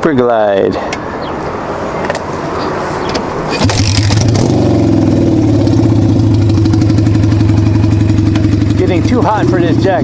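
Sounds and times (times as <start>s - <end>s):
motorcycle engine starting and idling: 3.5s - 10.0s.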